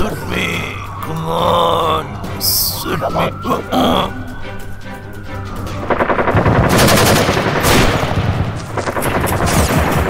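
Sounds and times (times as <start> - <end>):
machine-gun fire: 6.2 - 10.0.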